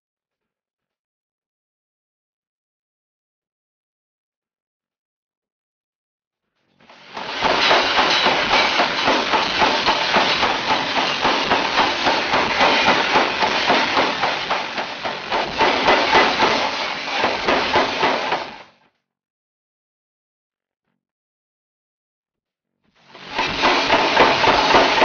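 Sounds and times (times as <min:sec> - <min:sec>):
power hammer striking steel: 0:06.9 - 0:18.7, 0:23.1 - 0:25.0.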